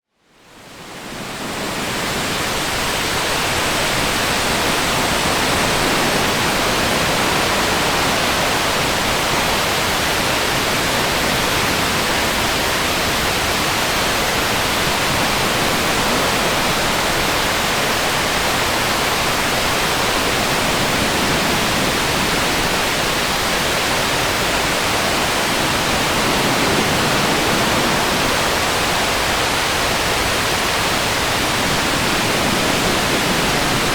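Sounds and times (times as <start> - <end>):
waterfall rushing: 0.7 - 33.9.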